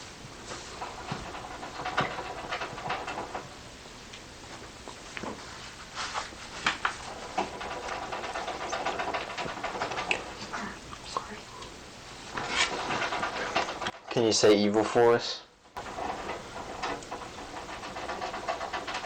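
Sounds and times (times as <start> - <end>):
recorder hiss: 0.0 - 19.0
clicks and knocks: 0.5 - 3.6, 6.6 - 14.2, 15.8 - 19.0.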